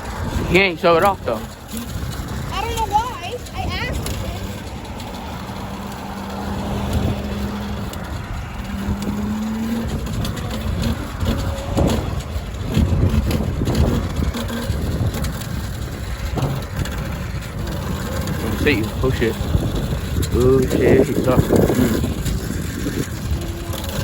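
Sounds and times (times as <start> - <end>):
car engine humming: 0.0 - 24.0
street noise: 0.0 - 24.0
wind: 0.0 - 24.0.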